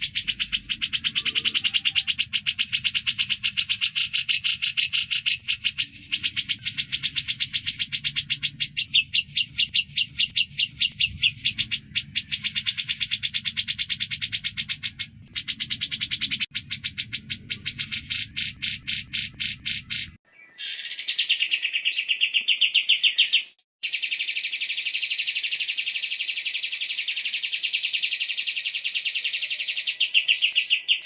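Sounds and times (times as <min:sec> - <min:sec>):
songbird chattering trill: 0:00.0 - 0:31.0.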